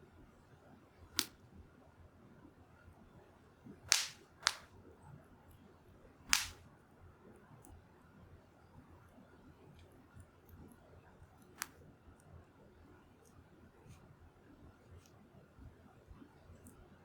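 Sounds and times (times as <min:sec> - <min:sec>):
firewood crackling: 0:03.9 - 0:04.7, 0:06.3 - 0:06.6
sharp fire pops: 0:03.9 - 0:04.7, 0:06.3 - 0:06.6.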